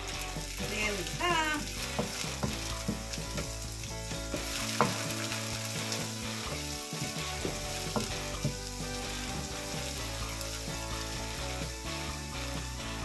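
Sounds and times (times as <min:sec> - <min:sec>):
vegetables sizzling in hot oil: 0:00.0 - 0:13.0
spatula scraping and tapping pan: 0:01.8 - 0:10.0.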